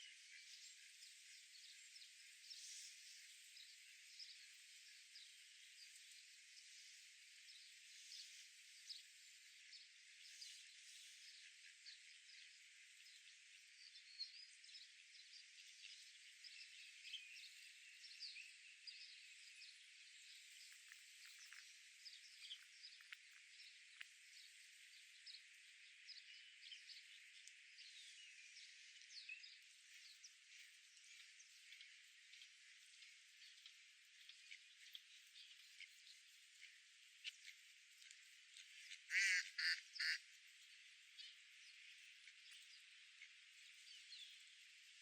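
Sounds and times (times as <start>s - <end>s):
small birds chirping: 9.7s - 45.0s.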